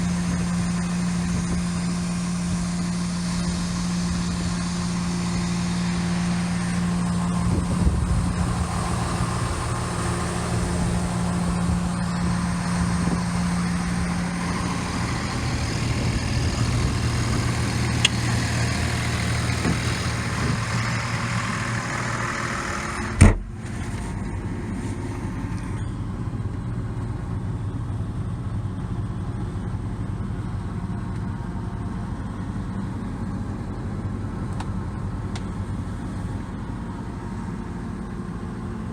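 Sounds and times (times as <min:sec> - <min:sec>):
engine idling: 0:00.0 - 0:38.9
sharp knock: 0:23.2 - 0:23.5.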